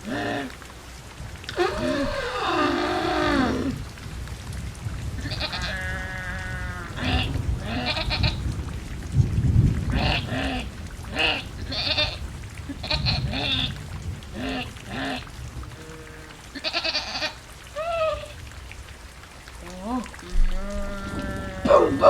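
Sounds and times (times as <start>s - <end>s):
rain: 0.0s - 22.0s
animal-like calls: 1.5s - 3.8s, 14.4s - 18.4s, 19.8s - 22.0s
thunder rumble: 1.6s - 16.0s, 20.3s - 22.0s.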